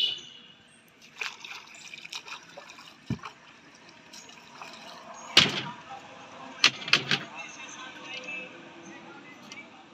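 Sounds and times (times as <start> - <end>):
water splashing and trickling: 0.6 - 8.8
sharp splash or thump: 1.1 - 3.4.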